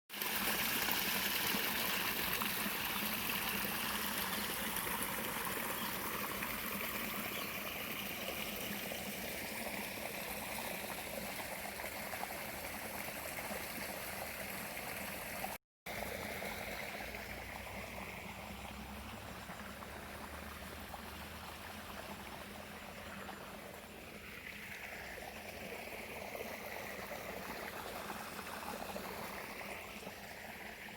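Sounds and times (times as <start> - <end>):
stream water rushing: 0.1 - 30.9.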